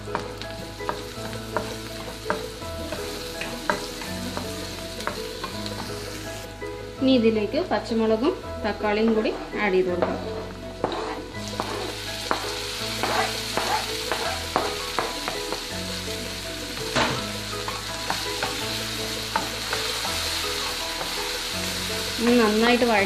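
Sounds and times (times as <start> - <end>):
vegetables sizzling in oil: 0.0 - 23.0
spatula clicking and scraping pan: 0.8 - 6.0, 10.8 - 15.6.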